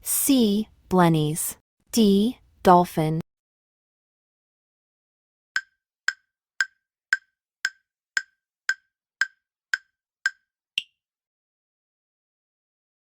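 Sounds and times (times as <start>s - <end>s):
countdown timer ticks: 5.6s - 11.0s.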